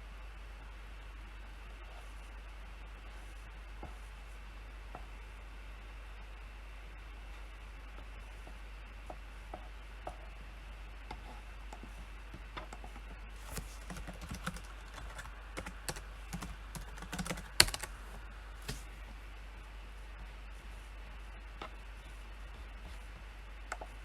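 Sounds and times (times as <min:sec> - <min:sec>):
typing on computer keyboard: 0:13.5 - 0:17.9.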